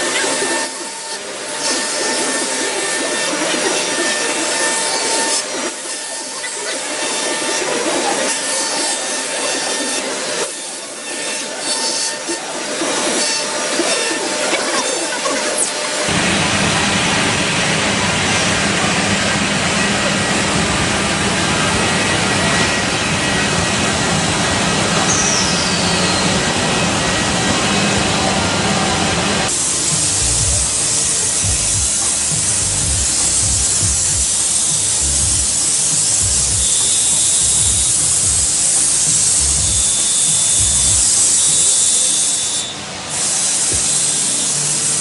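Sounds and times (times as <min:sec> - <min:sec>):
wood router machining hiss: 0:00.0 - 0:45.0
low thumps: 0:30.0 - 0:30.8, 0:31.4 - 0:34.4, 0:35.0 - 0:35.5, 0:36.2 - 0:36.7.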